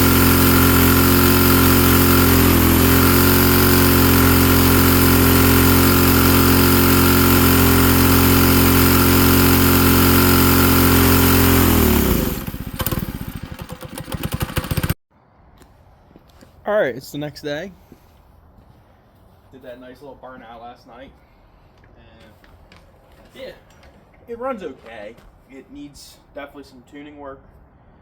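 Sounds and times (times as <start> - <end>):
small engine running and shutting off: 0.0 - 15.0.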